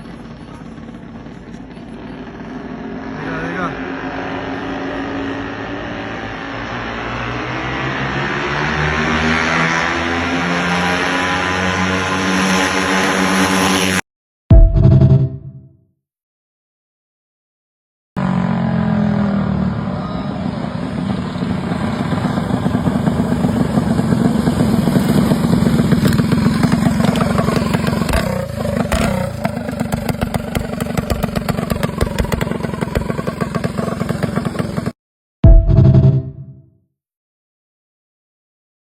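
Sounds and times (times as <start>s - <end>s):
small engine revving: 0.1s - 14.0s, 18.2s - 35.0s.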